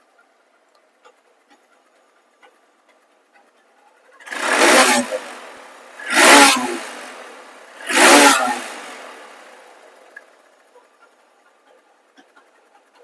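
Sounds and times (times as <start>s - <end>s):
motorcycle engine revving: 4.1s - 12.7s.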